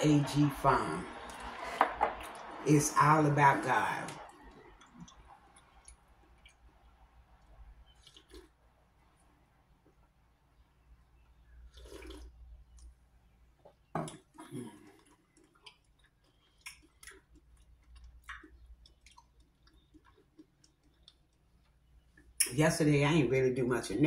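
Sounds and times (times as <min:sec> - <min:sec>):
wet chewing clicks: 0:04.1 - 0:08.6, 0:13.6 - 0:22.5
person sipping from a mug: 0:11.6 - 0:12.4.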